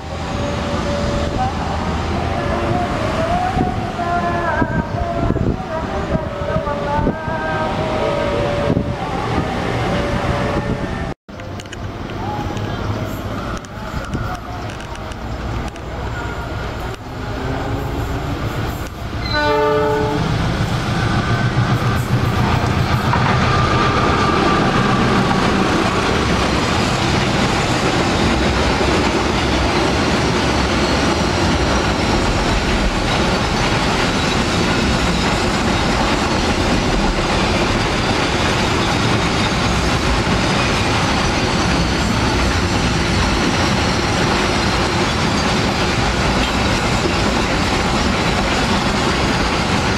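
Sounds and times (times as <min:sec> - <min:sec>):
train wheels rumbling on rails: 0:00.0 - 0:49.9
train horn: 0:00.4 - 0:11.1, 0:19.2 - 0:20.4.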